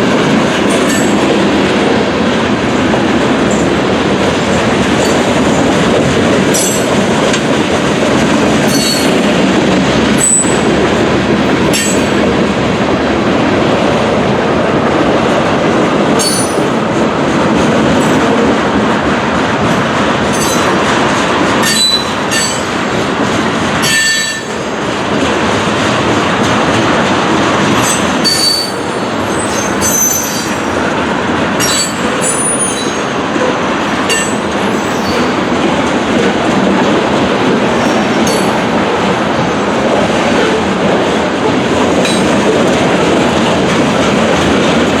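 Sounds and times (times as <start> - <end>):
train wheels rumbling on rail: 0.0 - 45.0
wheels squealing and clicking: 21.6 - 22.6, 27.8 - 30.7, 34.1 - 35.4.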